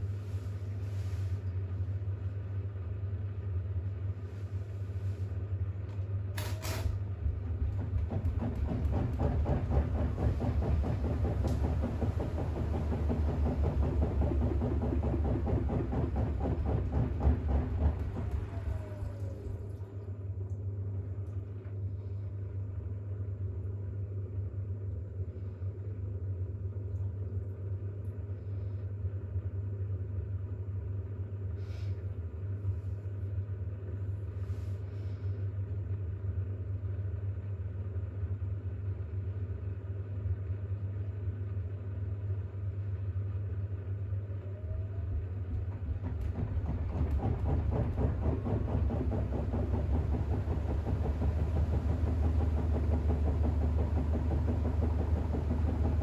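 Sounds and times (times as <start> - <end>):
washing machine spinning: 0.0 - 25.2, 38.3 - 56.0.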